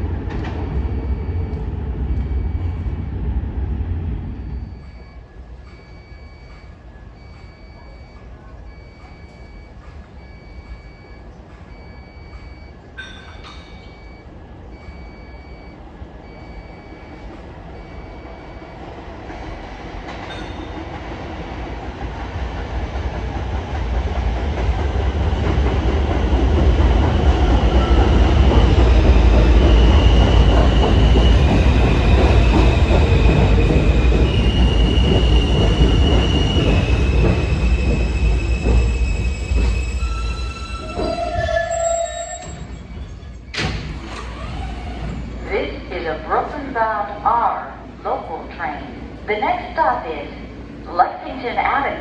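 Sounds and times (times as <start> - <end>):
subway train rumble: 0.0 - 52.0
high whining braking tones: 26.8 - 45.8.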